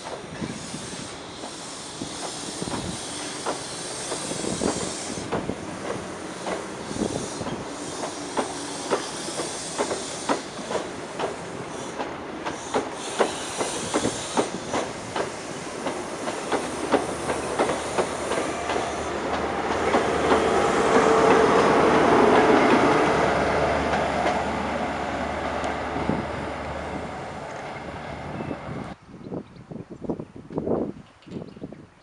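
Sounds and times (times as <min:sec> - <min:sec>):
train wheels clicking over rail joints: 0:00.0 - 0:23.2.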